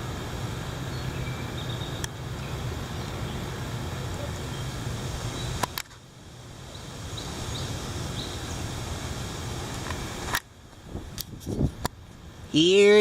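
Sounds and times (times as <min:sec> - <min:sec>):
rushing wind with low rumble: 0:00.0 - 0:12.6
sharp clicks: 0:05.6 - 0:06.0.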